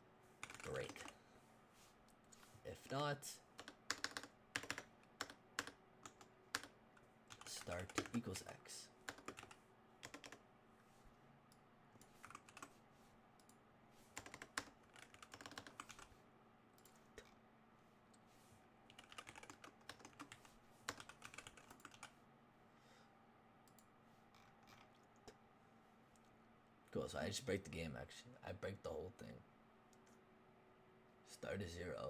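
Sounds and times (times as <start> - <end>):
computer keyboard typing: 0.4 - 1.2, 3.6 - 8.4, 9.0 - 10.4, 12.0 - 12.8, 13.4 - 16.1, 18.9 - 22.2.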